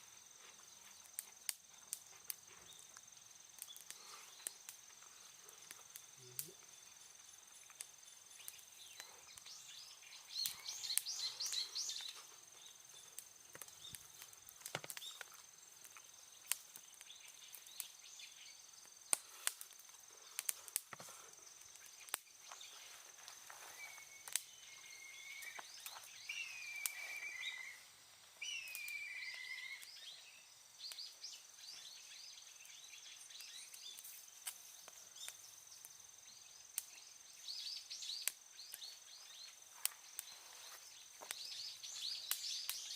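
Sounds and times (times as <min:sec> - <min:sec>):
bird calls: 0:08.1 - 0:14.2, 0:21.6 - 0:34.0, 0:36.9 - 0:42.9
high-pitched insect drone: 0:21.8 - 0:30.6.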